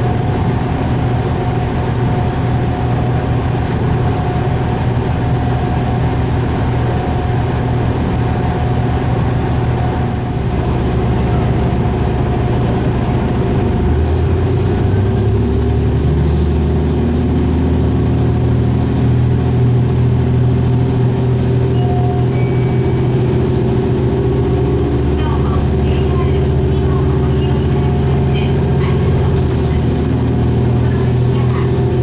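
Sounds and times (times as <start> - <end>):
diesel railcar engine running: 0.0 - 32.0.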